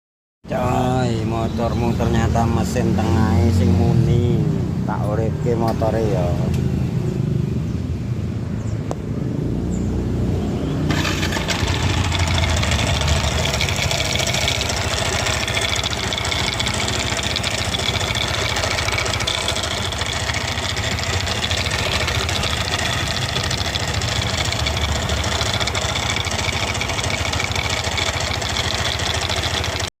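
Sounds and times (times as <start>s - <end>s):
scooter engine starting and idling: 10.8s - 29.9s.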